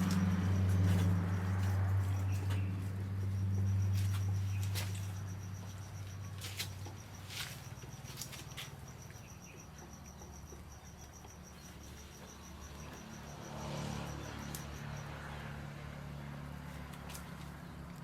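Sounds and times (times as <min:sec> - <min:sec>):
insect chirping rapidly: 0:03.0 - 0:15.2.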